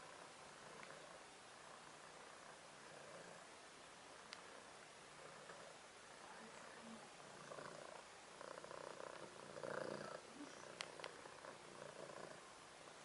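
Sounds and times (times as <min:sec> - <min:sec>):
faint sharp clicks: 0:04.3 - 0:04.5, 0:10.8 - 0:11.2
kitten purring: 0:04.3 - 0:12.5.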